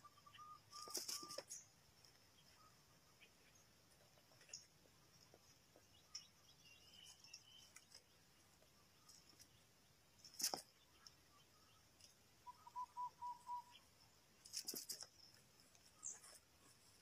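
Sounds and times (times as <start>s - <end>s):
dove cooing: 12.5s - 13.8s.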